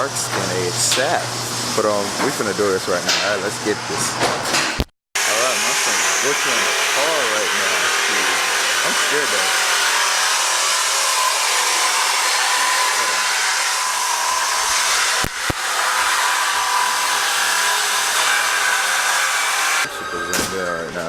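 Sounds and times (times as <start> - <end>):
cutting tool hissing through metal: 5.2 - 20.2.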